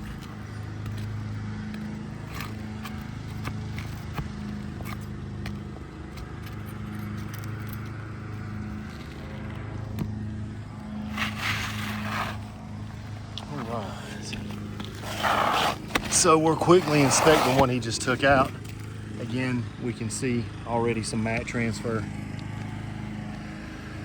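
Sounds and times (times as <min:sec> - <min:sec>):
roof shingle scraping and clicking: 0:00.0 - 0:19.4
rustling scrape: 0:11.0 - 0:12.6, 0:14.8 - 0:17.9.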